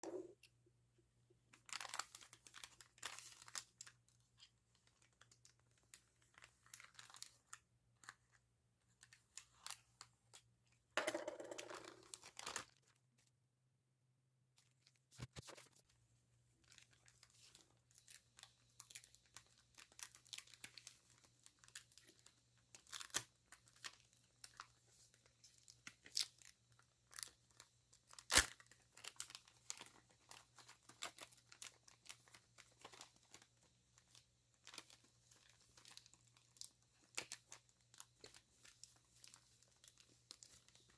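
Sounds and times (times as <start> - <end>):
packaging tearing and crinkling: 1.7 - 3.9, 6.3 - 7.4, 16.7 - 24.6, 25.8 - 40.9.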